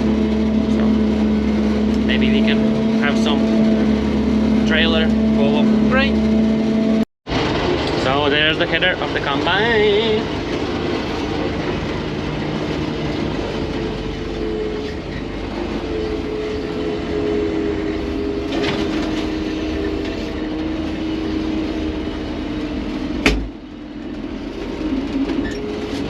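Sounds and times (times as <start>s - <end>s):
combine harvester running: 0.0s - 26.0s.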